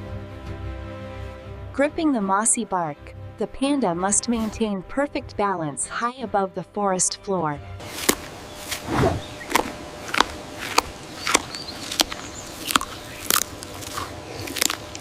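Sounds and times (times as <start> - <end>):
bamboo crunching cracks: 7.8 - 15.0.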